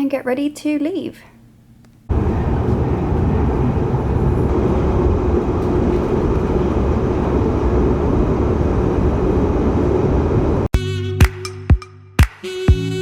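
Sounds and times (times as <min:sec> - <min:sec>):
vehicle rumble in motion: 0:02.1 - 0:10.7.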